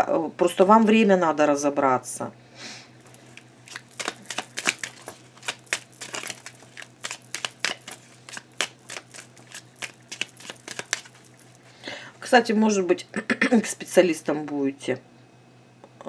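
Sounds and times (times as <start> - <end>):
cards being shuffled: 3.0 - 11.9.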